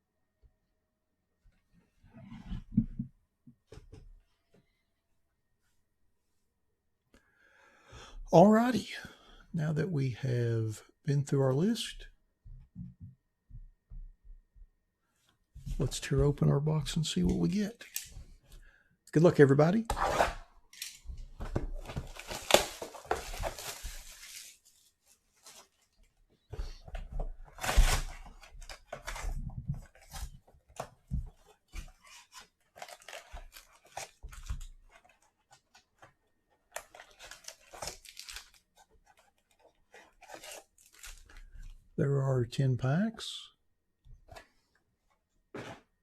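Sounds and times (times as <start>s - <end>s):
wrapping crinkling and rustling: 20.8s - 26.2s, 27.5s - 41.7s
packaging tearing: 22.1s - 24.6s.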